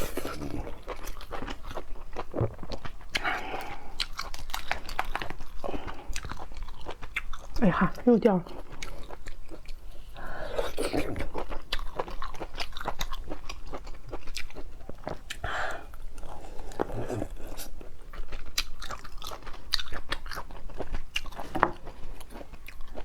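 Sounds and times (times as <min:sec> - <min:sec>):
chewing: 0:00.0 - 0:23.0
crab shell cracking and crunching: 0:00.8 - 0:07.6.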